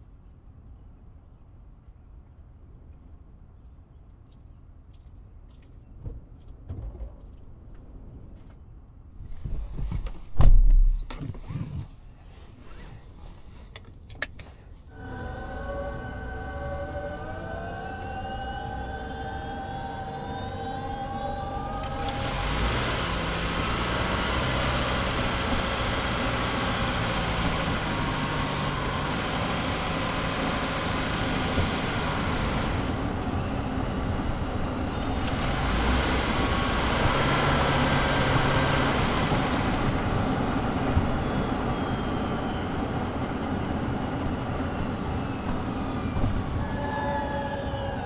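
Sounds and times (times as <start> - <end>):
high electric drive whine: 15.0 - 48.0.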